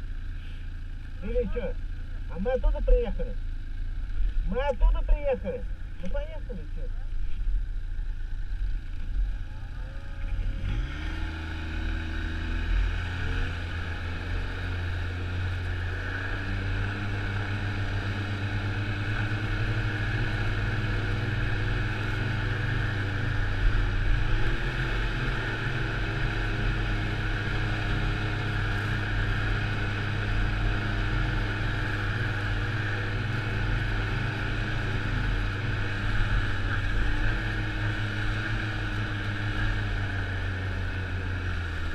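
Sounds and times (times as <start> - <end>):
snowmobile engine revving: 9.4 - 41.9.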